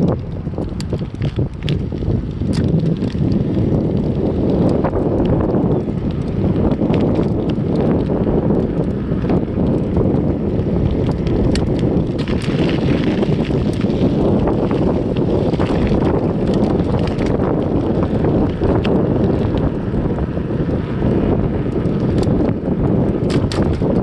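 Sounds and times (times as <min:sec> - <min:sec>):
small clicks and ticks: 0:00.0 - 0:24.0
wind buffeting microphone: 0:00.0 - 0:24.0.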